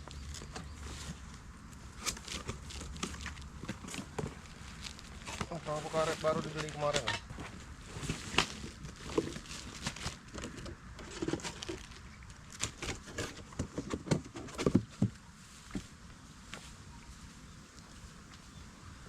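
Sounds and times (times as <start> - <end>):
rubber boat packaging rustling: 0.0 - 15.1.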